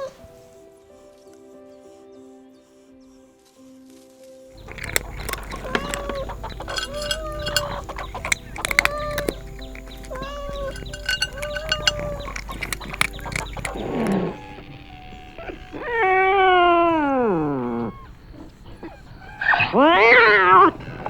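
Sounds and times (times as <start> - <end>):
sharp clicks: 4.6 - 14.2.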